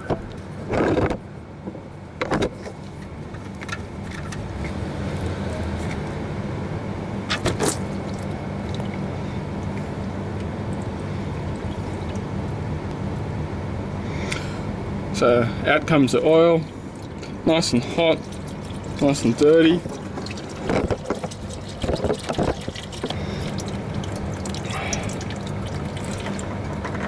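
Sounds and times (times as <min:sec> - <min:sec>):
oil pouring into drain pan: 0:17.8 - 0:27.0.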